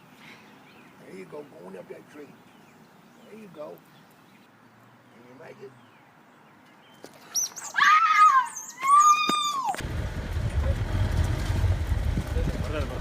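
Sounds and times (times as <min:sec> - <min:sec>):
animal squeaking and crying: 0:07.3 - 0:09.8
wind rumble on microphone: 0:09.8 - 0:13.0.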